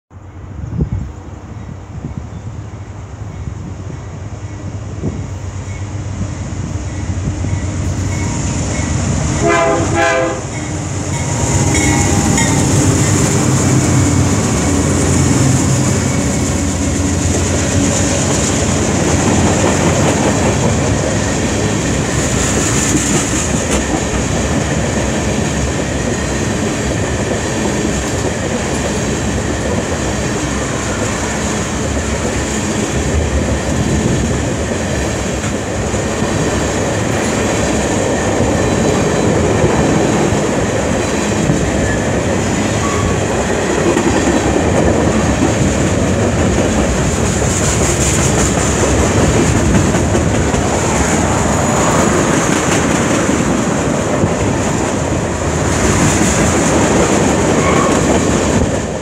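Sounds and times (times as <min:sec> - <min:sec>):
diesel locomotives rumbling: 0:00.1 - 0:59.0
train horn blast: 0:09.3 - 0:15.3
wheels clacking over rail joints: 0:34.6 - 0:59.0.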